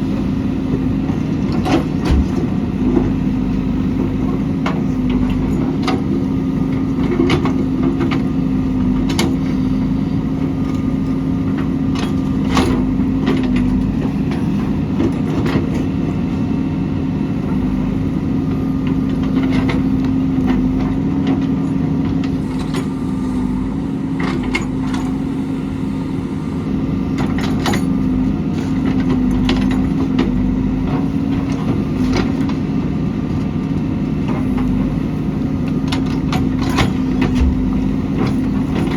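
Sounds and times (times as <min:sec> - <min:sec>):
diesel engine running: 0:00.0 - 0:38.9
metal clanks and knocks: 0:36.6 - 0:37.8.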